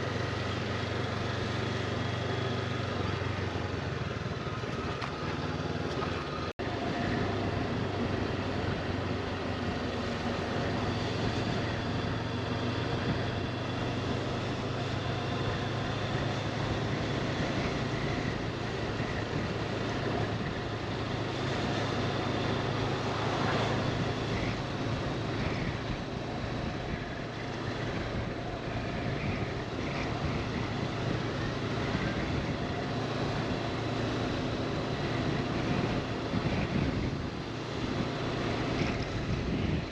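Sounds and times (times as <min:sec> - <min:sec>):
motorcycle engine cruising: 0:00.0 - 0:39.9
wind noise on microphone: 0:10.6 - 0:14.7, 0:15.5 - 0:39.9.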